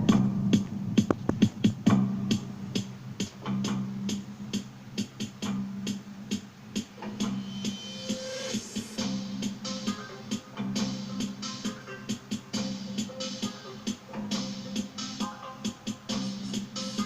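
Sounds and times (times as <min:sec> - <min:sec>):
electronic bass line: 0:00.0 - 0:06.3
drum machine beat: 0:00.0 - 0:17.0.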